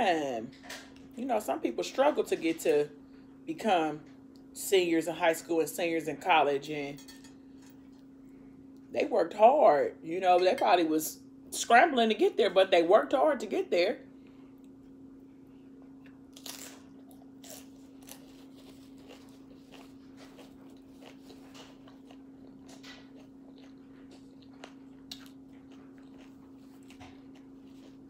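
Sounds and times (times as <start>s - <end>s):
faint low hum: 0.0s - 28.0s
crunching and chewing chips: 15.8s - 28.0s.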